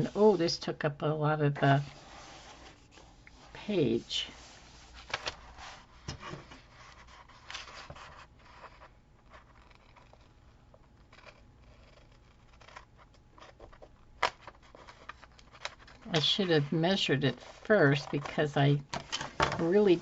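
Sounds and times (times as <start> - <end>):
paper and tape rustling: 1.9 - 10.3.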